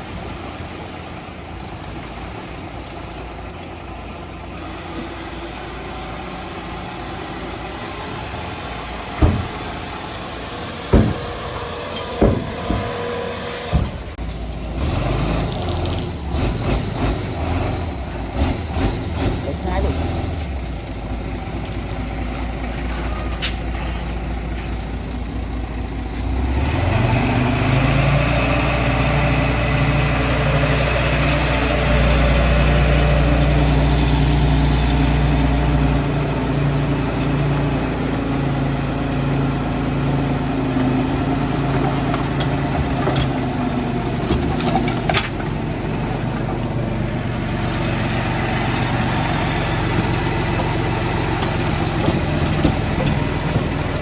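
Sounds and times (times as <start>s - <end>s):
heavy diesel engine revving: 0.0s - 54.0s
sharp metallic knocks: 9.2s - 9.8s, 10.9s - 14.0s.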